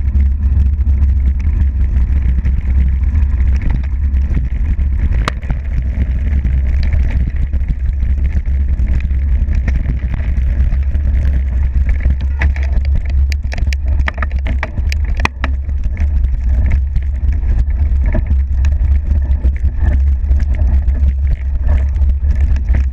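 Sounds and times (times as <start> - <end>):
bike rattling: 0.0 - 22.9
wind rumble on microphone: 0.0 - 22.9.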